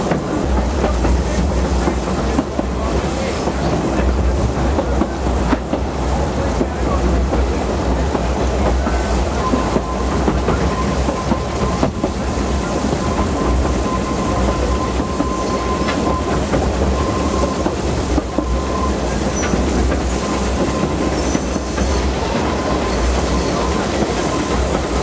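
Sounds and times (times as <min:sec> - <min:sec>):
train rumble: 0:00.0 - 0:25.0
wheels clickety-clack over rail joints: 0:00.0 - 0:25.0
thin wheel squeal: 0:12.7 - 0:17.6, 0:22.6 - 0:24.5.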